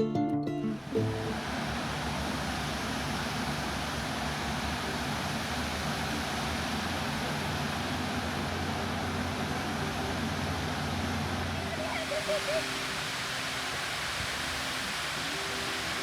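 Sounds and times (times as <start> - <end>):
vehicle engine running: 1.3 - 12.0.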